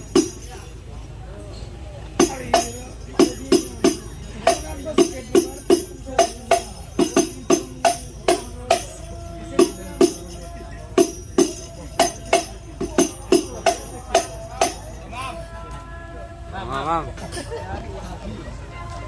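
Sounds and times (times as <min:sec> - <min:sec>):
frame drums with jingles: 0:00.0 - 0:01.0, 0:02.0 - 0:15.7.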